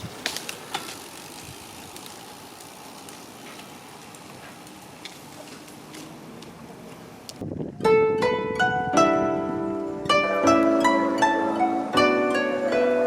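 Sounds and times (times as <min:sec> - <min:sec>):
bicycle clicks and rattles: 0:00.0 - 0:07.5
road and wind noise: 0:00.0 - 0:12.8.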